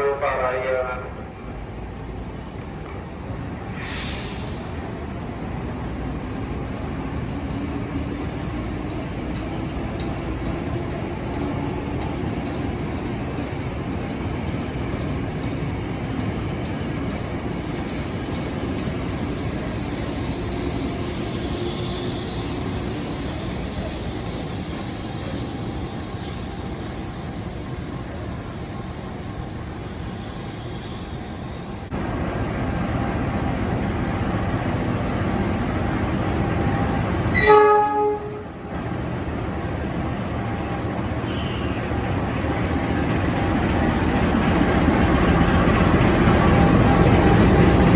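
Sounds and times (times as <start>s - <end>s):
electric train rumbling: 0.0s - 47.9s
locomotive engine and wheels rumbling: 0.0s - 47.9s
train high whine: 0.0s - 47.9s
locomotive horn blast: 37.3s - 38.6s.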